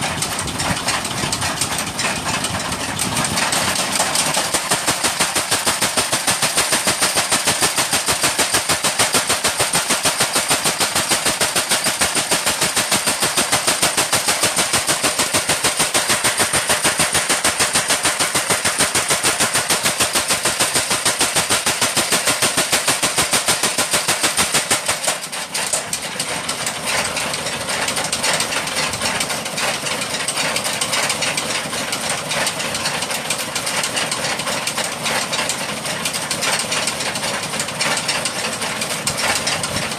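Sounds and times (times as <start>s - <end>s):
machine knocking rapidly: 0.0s - 39.9s
uneven mechanical clatter: 0.0s - 39.9s.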